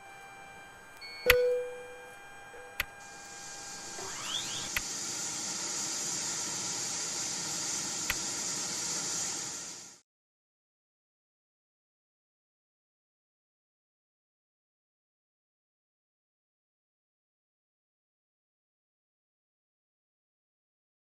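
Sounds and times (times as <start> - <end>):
steady hiss: 3.0 - 10.0.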